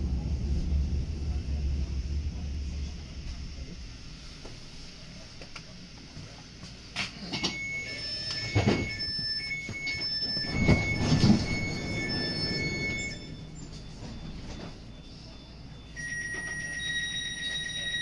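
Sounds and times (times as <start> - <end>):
train rumbling on track: 0.0 - 16.6
high metallic squeal: 9.8 - 14.6.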